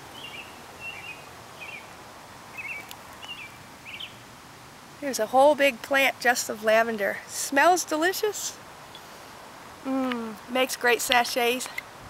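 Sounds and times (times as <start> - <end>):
songbird chirping: 0.0 - 4.3.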